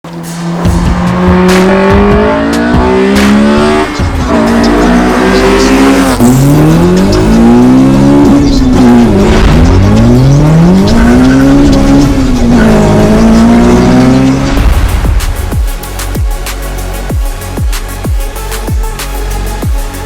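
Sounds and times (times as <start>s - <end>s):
car engine accelerating hard: 0.0s - 15.6s.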